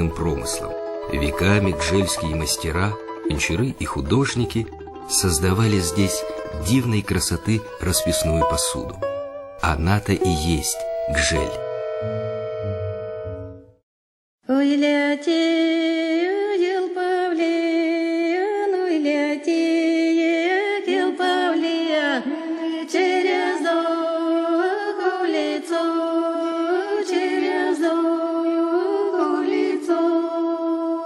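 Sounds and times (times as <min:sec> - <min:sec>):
woman singing unaccompanied: 0:14.4 - 0:31.0.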